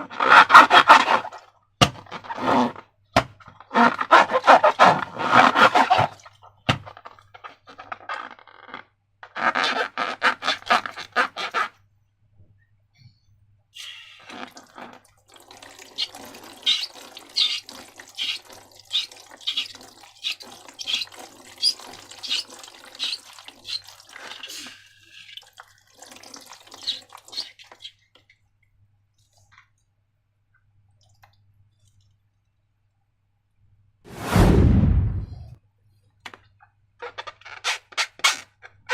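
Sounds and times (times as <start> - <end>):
slime squelching by hand: 15.6 - 24.8.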